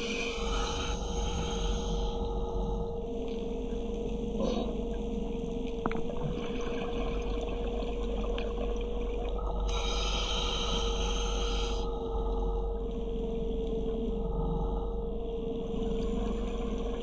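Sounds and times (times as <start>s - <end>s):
diver breathing through regulator: 0.0s - 3.0s, 9.4s - 12.7s
steady hum: 0.0s - 5.6s, 9.2s - 16.8s.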